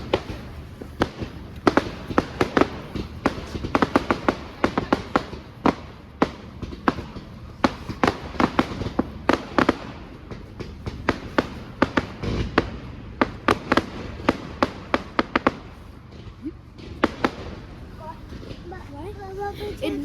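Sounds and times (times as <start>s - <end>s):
fireworks bangs and cracks: 0.0s - 20.0s.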